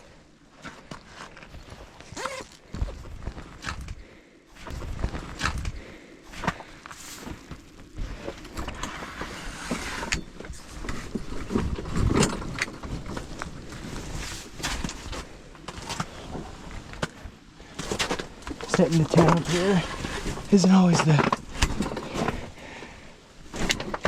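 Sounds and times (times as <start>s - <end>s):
fabric rustling and flapping: 4.6s - 20.5s.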